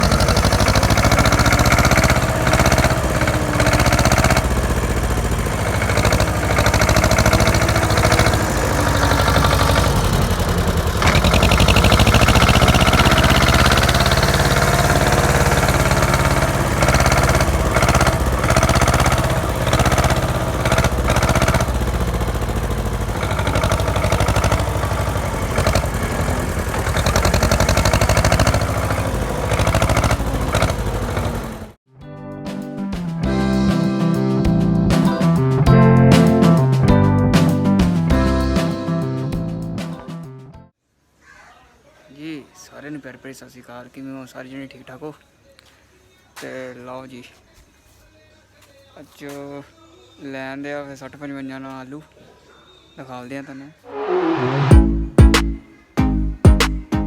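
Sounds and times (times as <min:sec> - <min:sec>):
diesel tractor engine running: 0:00.0 - 0:31.8.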